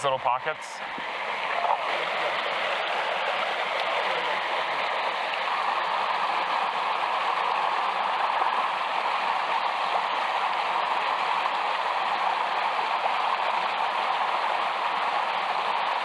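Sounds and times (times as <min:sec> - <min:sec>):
river water rushing: 0:00.8 - 0:16.0.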